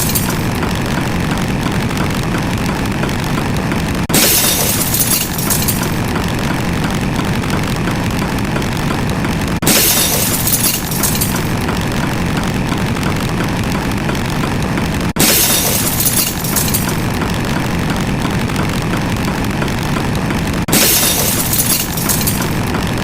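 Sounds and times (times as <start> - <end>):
dense steady rumble: 0.0 - 23.0.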